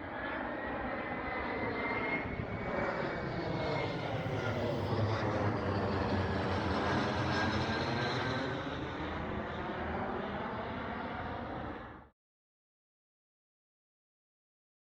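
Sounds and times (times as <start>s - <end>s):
airliner engines passing overhead: 0.0s - 12.1s.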